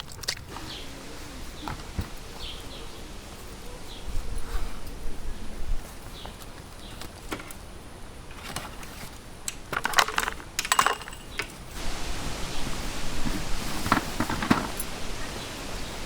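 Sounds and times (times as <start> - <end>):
steady hiss: 0.4 - 16.0
small hard objects clattering: 8.3 - 12.0, 13.2 - 16.0.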